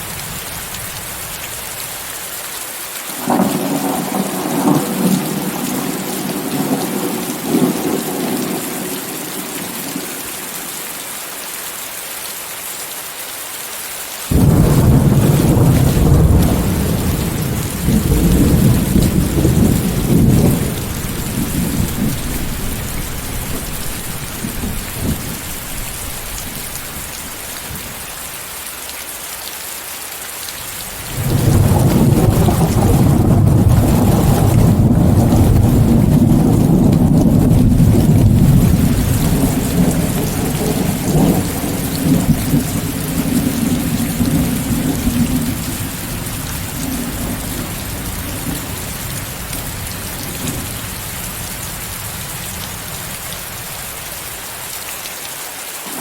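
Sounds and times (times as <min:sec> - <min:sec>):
heavy rain hissing: 0:00.0 - 0:56.0
thunder rumbling: 0:03.2 - 0:10.2, 0:14.3 - 0:28.2, 0:30.9 - 0:54.0.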